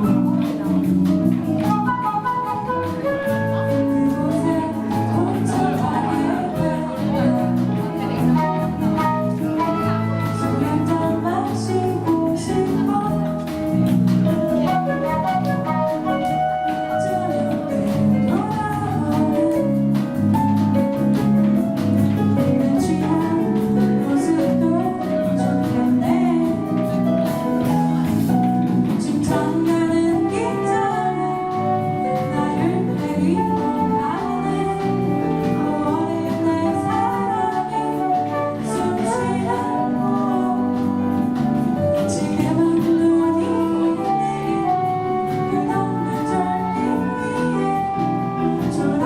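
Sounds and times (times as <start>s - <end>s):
person singing: 0.0s - 21.2s, 22.4s - 49.0s
instrumental accompaniment: 0.0s - 49.0s.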